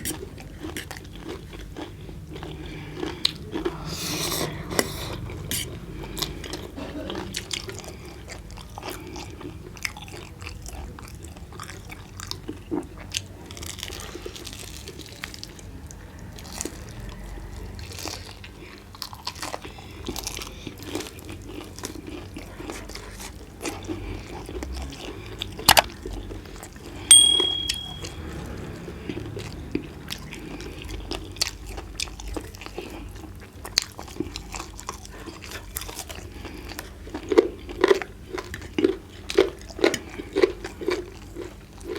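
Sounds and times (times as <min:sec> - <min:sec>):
chewing and crunching chicken: 0:00.0 - 0:27.1, 0:28.4 - 0:41.9
high ringing clink: 0:27.1 - 0:28.3.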